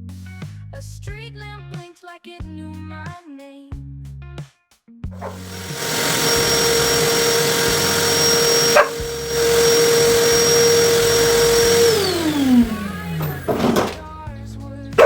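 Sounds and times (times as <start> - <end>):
vacuum cleaner motor whining: 5.2 - 14.2.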